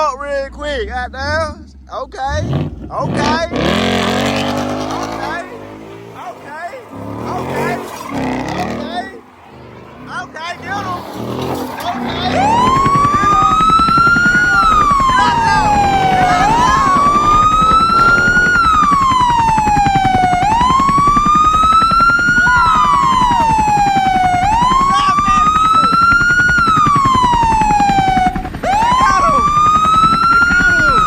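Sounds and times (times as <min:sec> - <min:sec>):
low rumble: 0:00.0 - 0:06.2
electronic siren wailing: 0:03.0 - 0:31.0.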